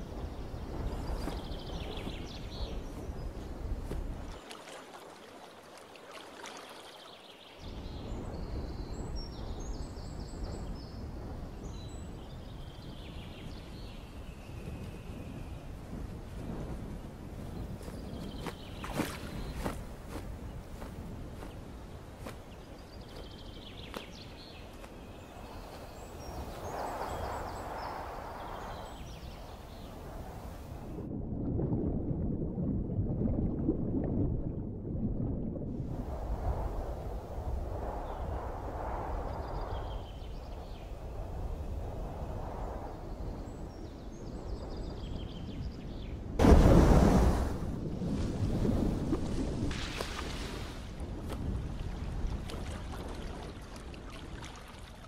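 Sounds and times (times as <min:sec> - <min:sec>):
wind buffeting microphone: 0:00.0 - 0:04.4, 0:07.6 - 0:55.0
birds chirping: 0:17.4 - 0:30.7.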